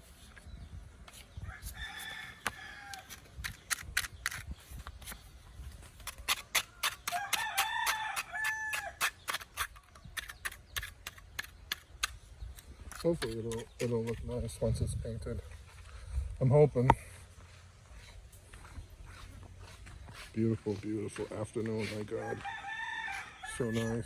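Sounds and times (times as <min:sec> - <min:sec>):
rooster crowing: 0:01.5 - 0:03.1, 0:06.9 - 0:09.0, 0:22.1 - 0:24.0.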